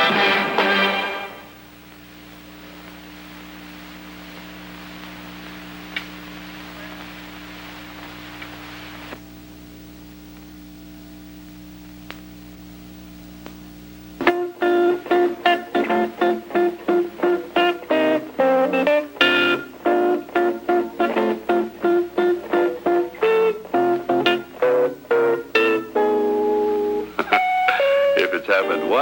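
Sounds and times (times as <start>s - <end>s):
guitar strumming chords: 0.0s - 1.7s, 14.2s - 29.0s
low hum with hiss: 0.0s - 29.0s.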